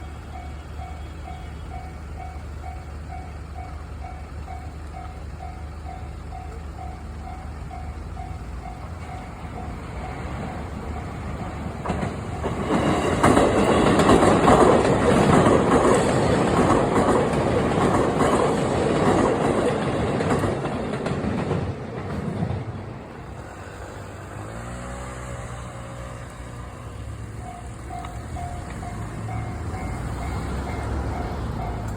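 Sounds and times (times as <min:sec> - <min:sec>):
train passing with loud rumble: 0:00.0 - 0:31.9
train wheel clatter: 0:00.4 - 0:23.6, 0:26.1 - 0:31.9
level-crossing bell ringing: 0:27.3 - 0:31.9.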